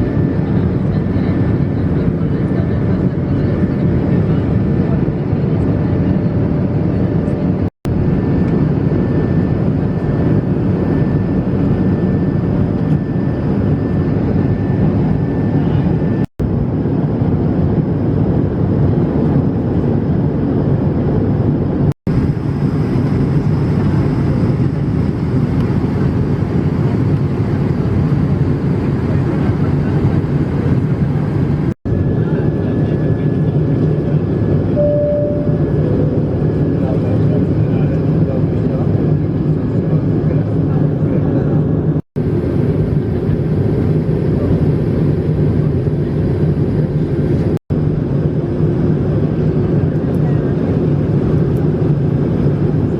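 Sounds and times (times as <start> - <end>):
airliner cabin rumble and hiss: 0.0 - 52.9
short tone: 34.7 - 36.4.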